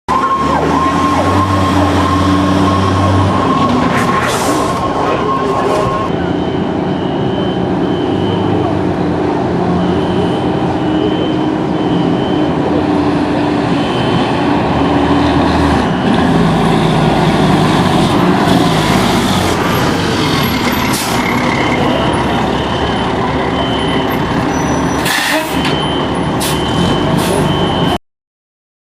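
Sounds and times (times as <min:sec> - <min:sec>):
fire engine running: 0:00.1 - 0:28.0
air brakes hissing: 0:24.9 - 0:25.8, 0:26.4 - 0:27.5.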